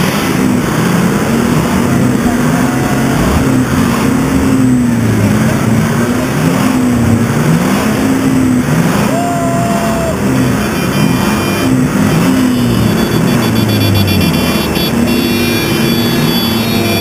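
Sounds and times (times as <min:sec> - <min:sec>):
off-road engines revving: 0:00.0 - 0:17.0
car horn: 0:10.4 - 0:17.0.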